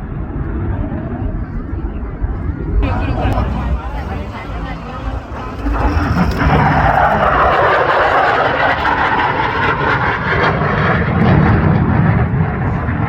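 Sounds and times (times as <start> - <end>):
jet engine roar: 0.3 - 13.0.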